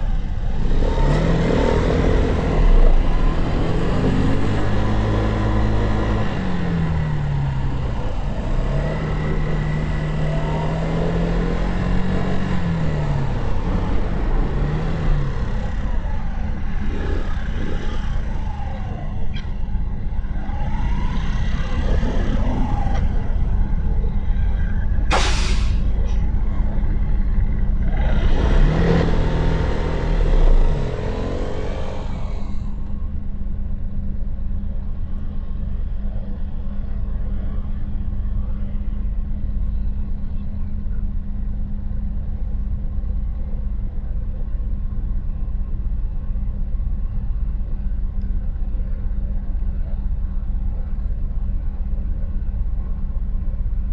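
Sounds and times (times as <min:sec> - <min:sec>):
passing vehicle: 0:00.0 - 0:53.9
short sharp hiss: 0:25.1 - 0:25.8.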